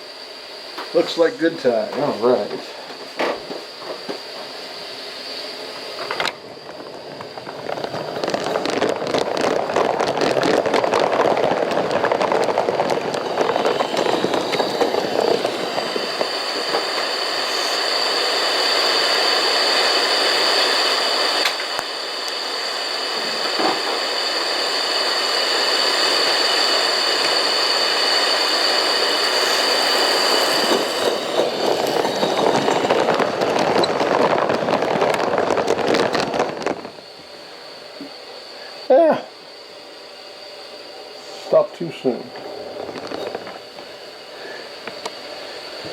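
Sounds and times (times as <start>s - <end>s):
steam locomotive exhaust beating: 7.4s - 20.0s.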